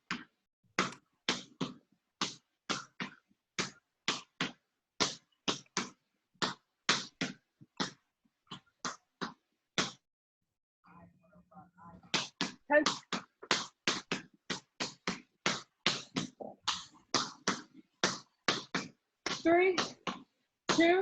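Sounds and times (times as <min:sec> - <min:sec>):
basketball bouncing: 0:12.1 - 0:21.0.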